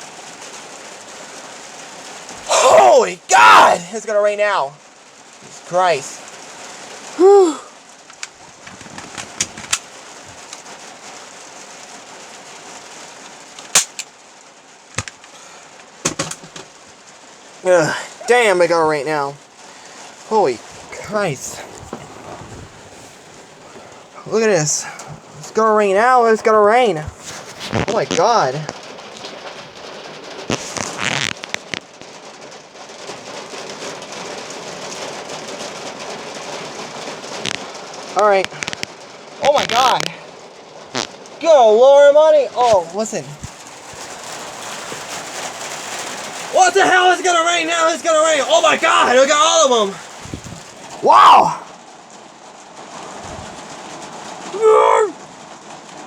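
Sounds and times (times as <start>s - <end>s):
steady rain falling: 0.0s - 56.0s
sharp clicks: 13.6s - 14.1s
sharp knocks: 16.0s - 16.8s.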